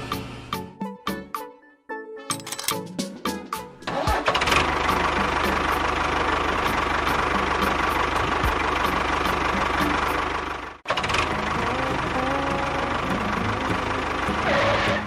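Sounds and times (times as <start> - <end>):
small engine running: 3.8 - 15.0.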